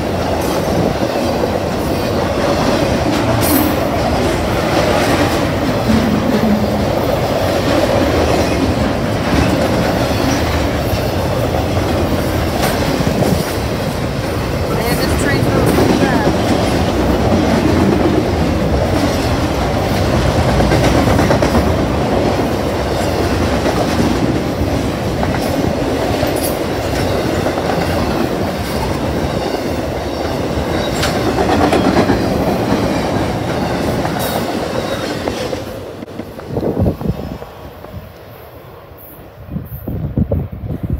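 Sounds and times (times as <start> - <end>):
freight train rumbling and rattling: 0.0 - 40.9.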